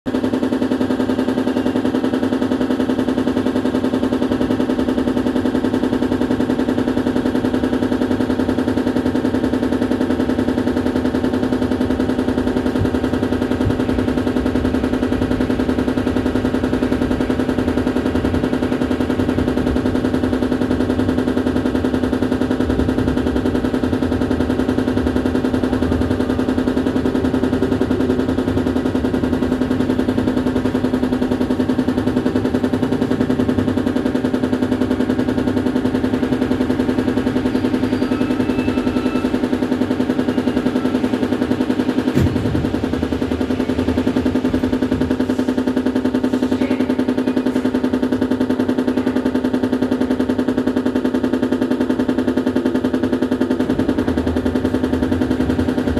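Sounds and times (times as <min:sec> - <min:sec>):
train buzzing rattle: 0:00.1 - 0:55.9.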